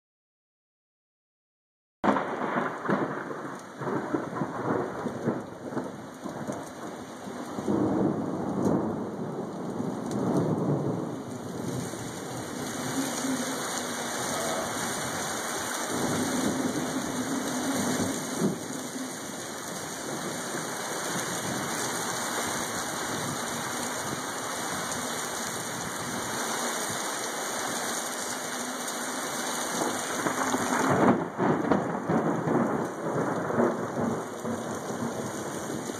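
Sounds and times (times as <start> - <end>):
heavy rain: 2.0 - 35.9
thunder rumbling: 2.1 - 35.9
strong wind: 7.5 - 27.1.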